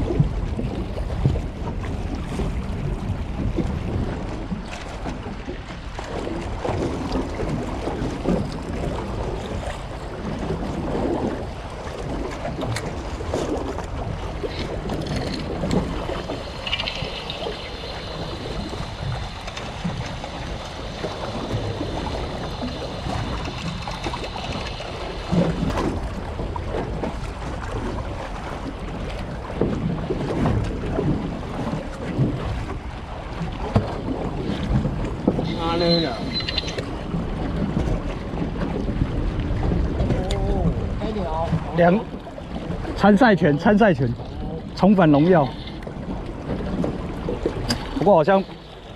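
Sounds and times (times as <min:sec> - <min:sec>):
sea surf: 0:00.0 - 0:48.9
wind buffeting microphone: 0:00.0 - 0:48.9.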